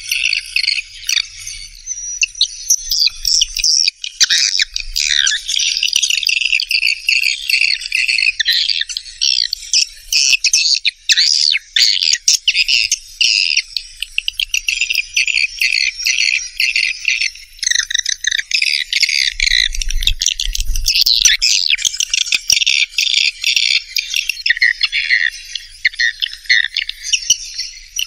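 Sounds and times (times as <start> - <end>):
swiftlets chattering and twittering: 0.0 - 28.0.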